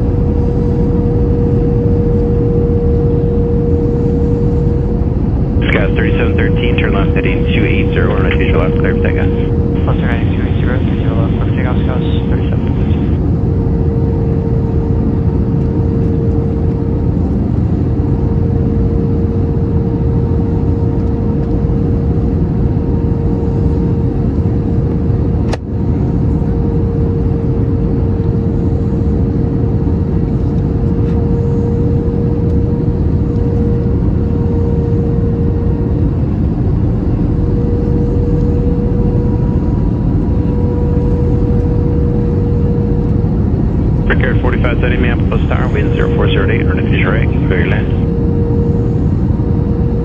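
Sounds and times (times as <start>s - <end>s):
steady droning tone: 0.0s - 18.4s, 30.0s - 50.0s
aircraft cabin engine rumble: 0.0s - 50.0s.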